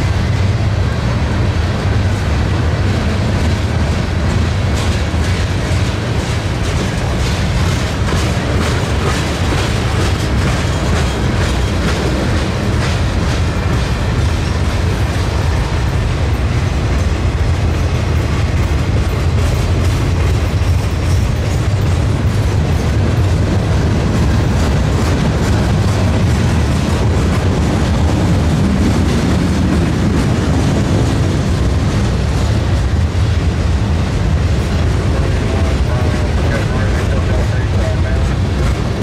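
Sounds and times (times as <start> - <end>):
train wheels rumbling on rails: 0.0 - 39.0
wheels clicking over rail joints: 3.3 - 33.0.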